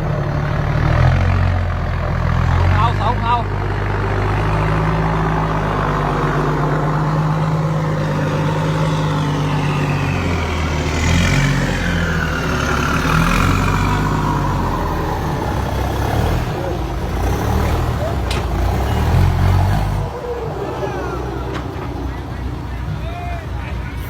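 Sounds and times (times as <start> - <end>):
truck engine running: 0.0 - 24.0
high sounds sliding down: 19.6 - 24.0.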